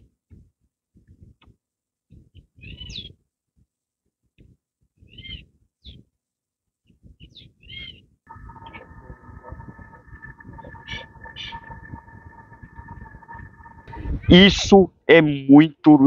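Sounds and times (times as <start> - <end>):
bird calling: 7.7 - 14.4
steady multi-tone hum: 8.3 - 14.7
low rumbling noise: 8.3 - 14.8.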